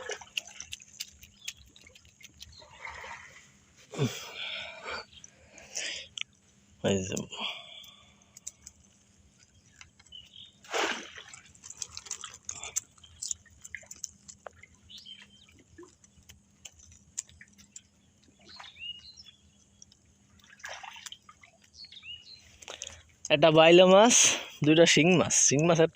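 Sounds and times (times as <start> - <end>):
water splashing and dripping: 0.0 - 3.5, 7.9 - 18.9, 19.7 - 21.9
small clicks and knocks: 11.6 - 18.4.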